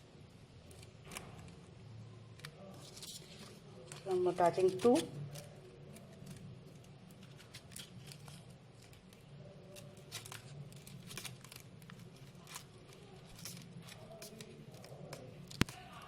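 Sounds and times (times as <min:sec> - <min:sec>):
crepe paper crinkling and rustling: 0:00.5 - 0:16.0
tape being wound around wire: 0:02.3 - 0:16.0.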